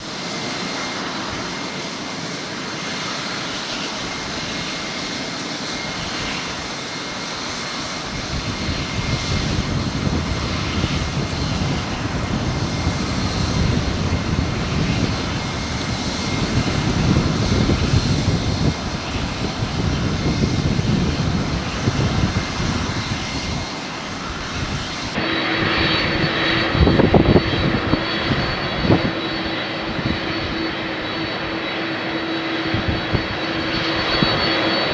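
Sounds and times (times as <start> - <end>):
jet engines running: 0.0 - 34.9
steady high whine: 0.0 - 34.9.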